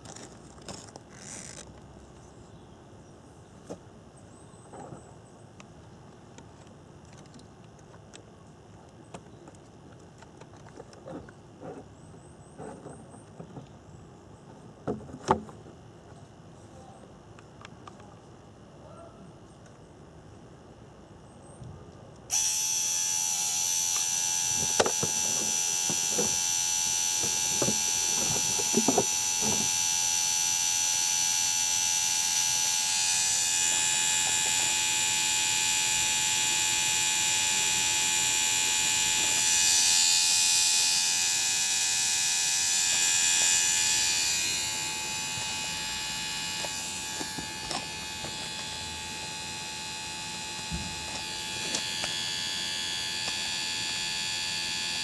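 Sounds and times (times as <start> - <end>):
electric motor whirring: 22.3 - 55.0.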